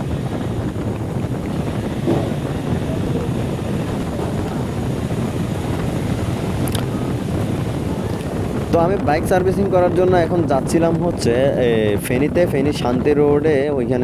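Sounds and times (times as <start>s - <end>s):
motorcycle running on wet road: 0.0s - 10.1s
wind rumbling on microphone: 0.0s - 14.0s.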